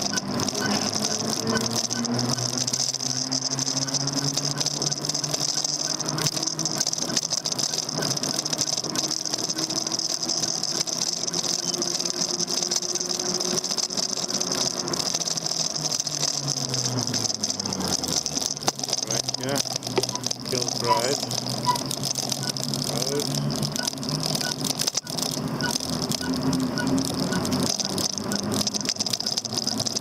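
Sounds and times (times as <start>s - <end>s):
electric bike motor hum: 0.0s - 30.0s.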